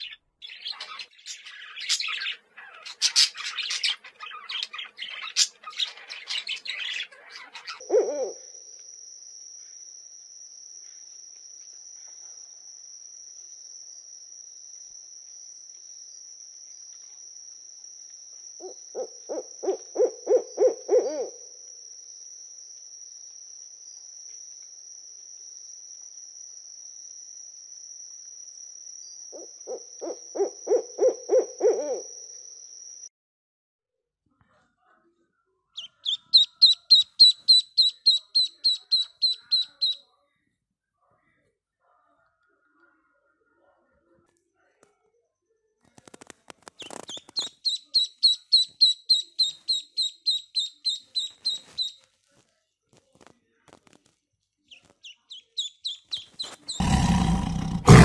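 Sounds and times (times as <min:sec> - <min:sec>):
small birds chirping: 0:00.0 - 0:08.5, 0:35.8 - 0:40.0, 0:46.7 - 0:52.1, 0:54.6 - 0:58.0
owl hooting: 0:00.0 - 0:08.7, 0:18.6 - 0:21.6, 0:29.4 - 0:32.2, 0:35.8 - 0:40.0
high-pitched insect trill: 0:00.0 - 0:33.1, 0:35.8 - 0:40.0, 0:46.8 - 0:52.0.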